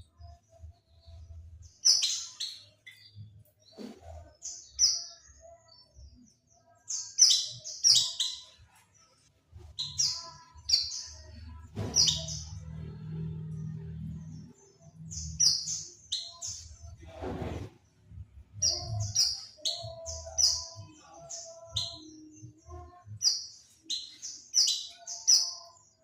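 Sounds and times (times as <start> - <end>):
bird chirping high: 1.7 - 3.3, 6.9 - 8.6, 9.7 - 17.0, 18.6 - 26.0.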